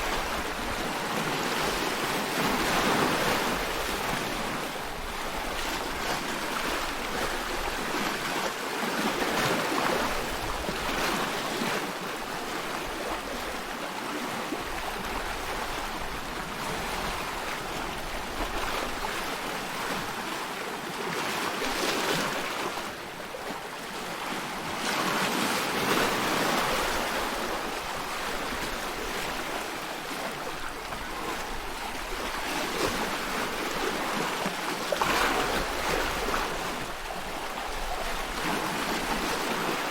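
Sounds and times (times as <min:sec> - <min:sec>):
sea waves washing: 0:00.0 - 0:08.6.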